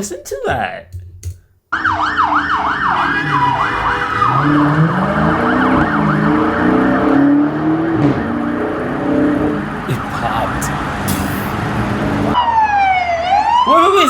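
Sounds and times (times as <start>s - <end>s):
police siren yelping: 1.7s - 14.0s
car engine accelerating: 2.3s - 12.4s.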